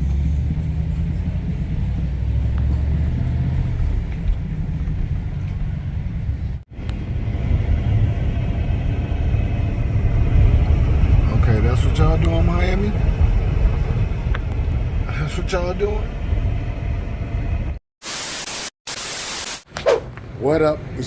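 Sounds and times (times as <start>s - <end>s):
car rumbling on the move: 0.0s - 17.8s.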